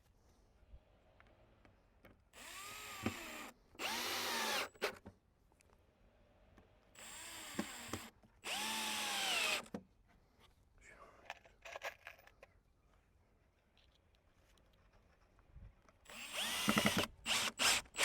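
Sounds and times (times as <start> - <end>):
power drill driving screws into wood: 2.4 - 5.0, 7.0 - 9.8, 16.1 - 18.0.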